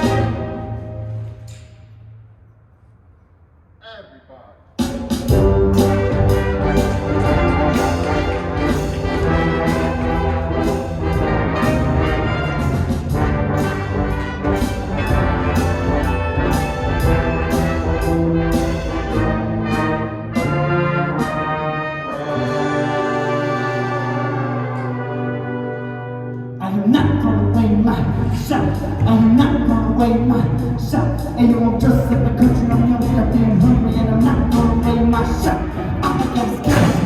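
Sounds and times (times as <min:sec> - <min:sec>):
wind band playing: 0:00.0 - 0:01.4, 0:04.9 - 0:26.6, 0:35.4 - 0:37.0
percussion hits: 0:04.8 - 0:21.6, 0:36.4 - 0:37.0.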